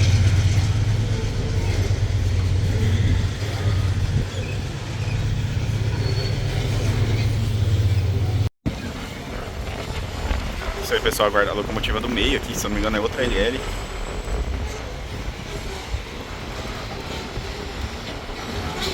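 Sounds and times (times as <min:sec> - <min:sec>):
diesel locomotive rumble: 0:00.0 - 0:18.9
heavy wagons running on rails: 0:00.0 - 0:18.9.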